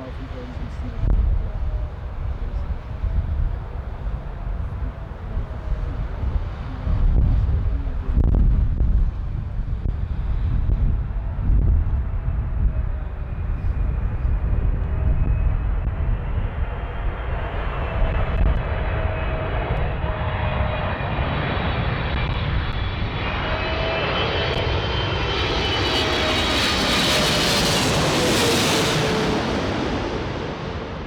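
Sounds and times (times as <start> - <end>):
wind rumbling on microphone: 0.0 - 31.0
jet engines whining: 9.4 - 31.0.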